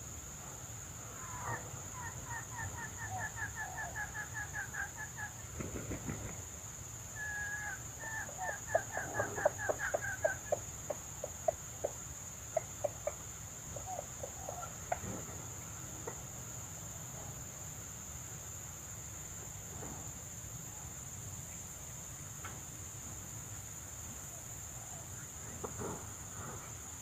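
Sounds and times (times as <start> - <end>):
hen clucking: 7.6 - 15.3.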